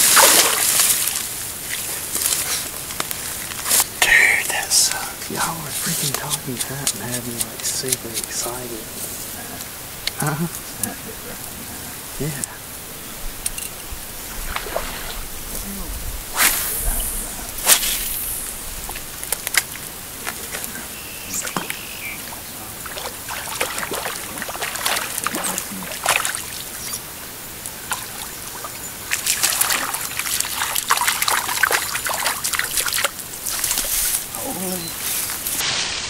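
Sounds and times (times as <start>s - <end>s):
short splashes and clicks: 0.0s - 1.3s, 22.8s - 26.6s, 29.1s - 34.2s
water trickling and splashing: 0.0s - 10.0s, 14.2s - 15.6s, 17.8s - 36.0s.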